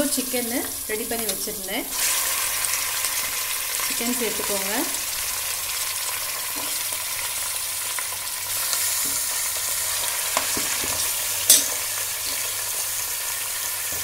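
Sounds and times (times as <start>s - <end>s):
chicken sizzling in oil: 0.0s - 14.0s
spatula clinking against pot: 11.5s - 11.8s.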